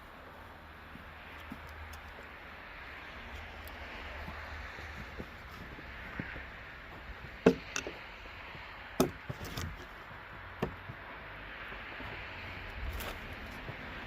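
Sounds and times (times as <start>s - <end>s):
sharp wooden knocks: 7.4s - 8.0s, 9.0s - 9.8s, 10.5s - 11.1s.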